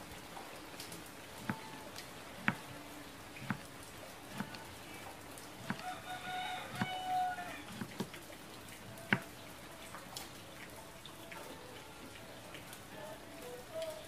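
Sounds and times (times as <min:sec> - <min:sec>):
rooster crowing: 0:05.7 - 0:07.8.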